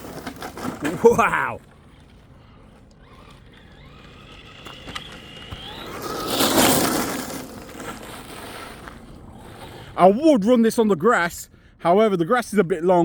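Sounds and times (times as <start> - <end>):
tyres rushing on gravel: 0.0 - 11.3
rc car motor whine: 1.6 - 9.8.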